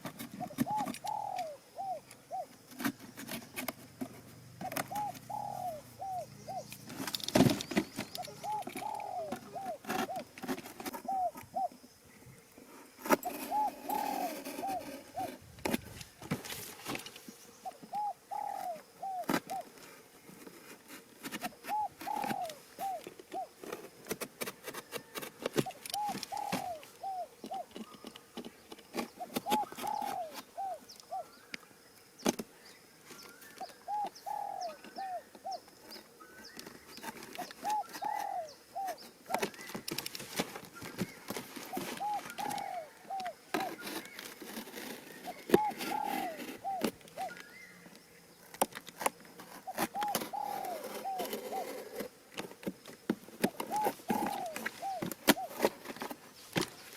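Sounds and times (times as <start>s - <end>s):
dove cooing: 0.0s - 11.9s, 13.1s - 16.0s, 16.8s - 31.5s, 33.1s - 47.9s, 49.0s - 52.4s, 53.0s - 56.8s.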